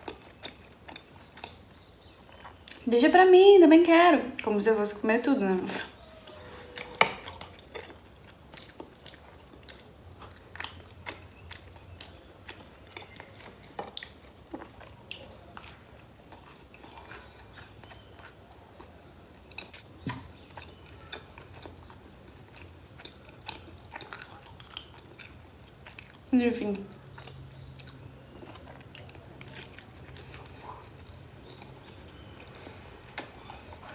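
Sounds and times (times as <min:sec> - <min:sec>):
person chewing with mouth clicks: 0:00.0 - 0:02.8, 0:06.8 - 0:26.3, 0:27.0 - 0:33.9.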